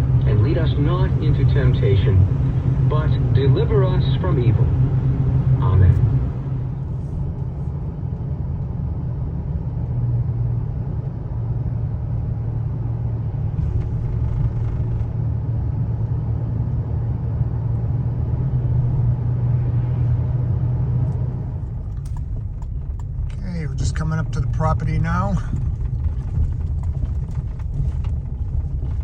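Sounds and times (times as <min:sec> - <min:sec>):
truck driving heard from cab: 0:00.0 - 0:29.0.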